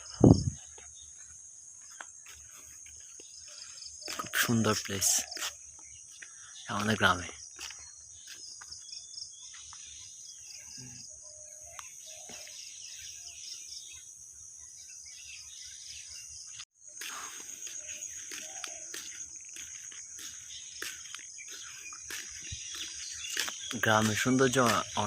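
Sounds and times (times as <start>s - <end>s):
high-pitched insect trill: 0.0s - 25.0s
short bird calls: 15.2s - 25.0s.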